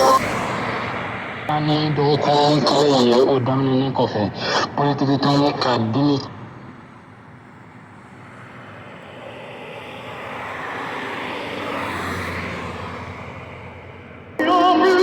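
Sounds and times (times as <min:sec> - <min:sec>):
radio static hiss: 0:00.0 - 0:00.2, 0:01.5 - 0:06.3.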